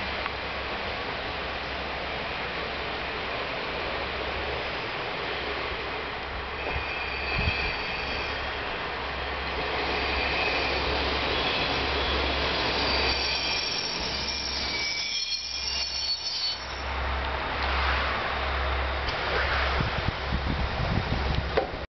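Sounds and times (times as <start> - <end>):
train braking to a stop: 6.4 - 18.2
high wheel and brake squeal: 6.6 - 8.7, 9.8 - 16.9.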